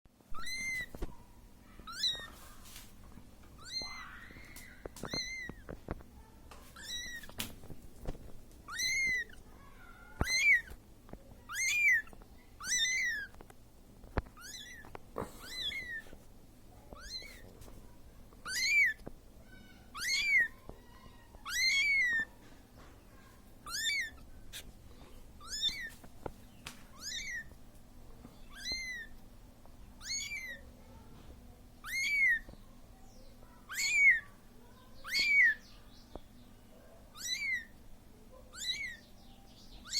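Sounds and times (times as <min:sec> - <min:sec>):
kitten meowing: 0:00.3 - 0:01.1, 0:01.8 - 0:02.4, 0:03.6 - 0:05.7, 0:06.8 - 0:07.4, 0:08.7 - 0:09.4, 0:10.2 - 0:10.7, 0:11.5 - 0:13.4, 0:14.4 - 0:16.2, 0:16.9 - 0:17.4, 0:18.4 - 0:22.3, 0:23.6 - 0:24.6, 0:25.4 - 0:26.0, 0:26.9 - 0:27.5, 0:28.4 - 0:29.1, 0:30.0 - 0:30.6, 0:31.8 - 0:32.6, 0:33.7 - 0:34.3, 0:35.0 - 0:35.6, 0:37.2 - 0:37.7, 0:38.5 - 0:39.0.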